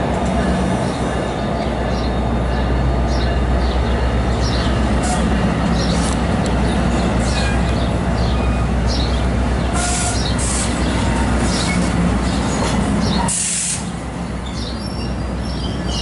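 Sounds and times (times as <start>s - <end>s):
train coaches rumbling: 0.0s - 16.0s.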